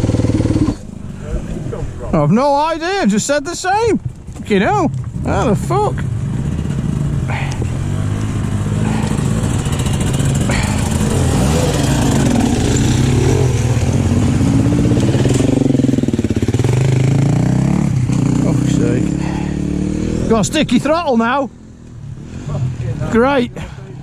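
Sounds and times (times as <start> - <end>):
dirt bike engine running: 0.0 - 1.2, 4.0 - 21.4.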